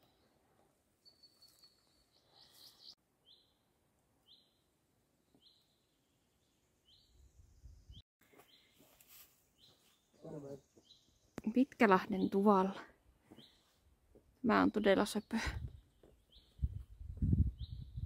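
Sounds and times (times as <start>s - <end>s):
low rumble of wind: 15.4s - 18.0s.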